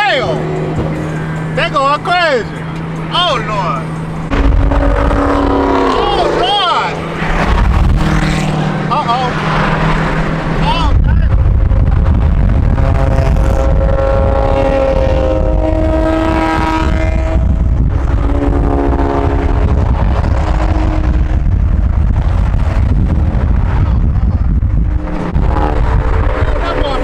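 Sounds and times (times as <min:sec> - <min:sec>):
car engine revving hard: 0:00.0 - 0:27.0
wind rumble: 0:00.0 - 0:27.0.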